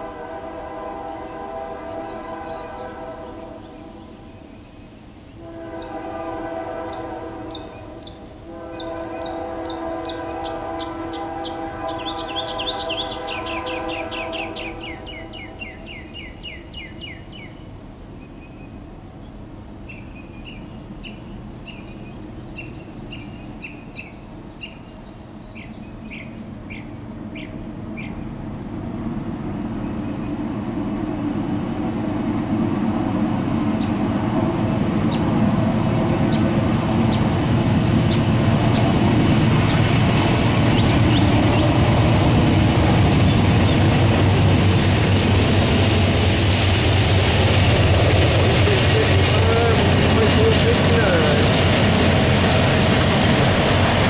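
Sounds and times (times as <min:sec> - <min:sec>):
train horn: 0:00.0 - 0:04.4, 0:05.4 - 0:15.9, 0:48.2 - 0:52.4
birds chirping: 0:01.3 - 0:04.9, 0:06.8 - 0:17.6, 0:31.3 - 0:42.0
diesel locomotive rumble: 0:26.4 - 0:54.0.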